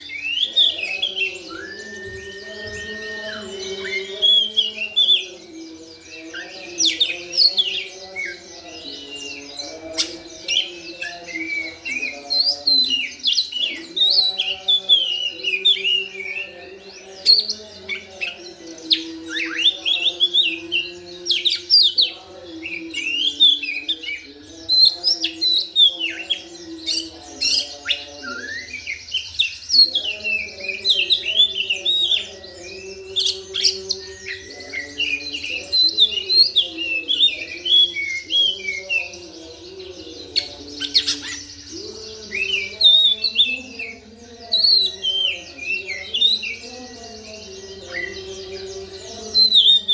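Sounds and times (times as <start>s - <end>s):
bird singing chattering whistles: 0.0s - 5.2s.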